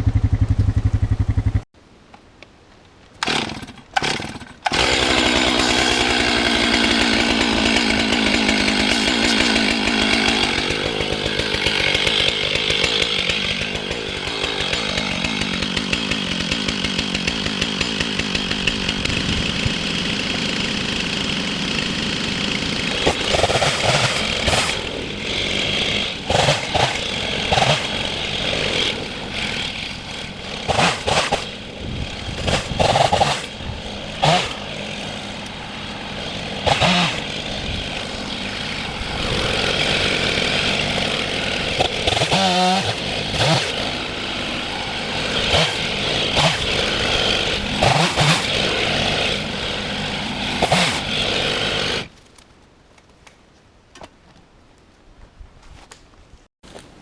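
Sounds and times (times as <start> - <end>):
vehicle engine running: 0.0 - 1.7.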